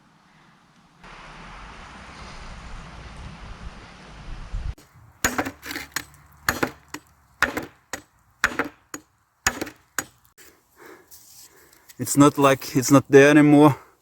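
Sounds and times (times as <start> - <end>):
tomahawk chopping wood: 5.2 - 10.3.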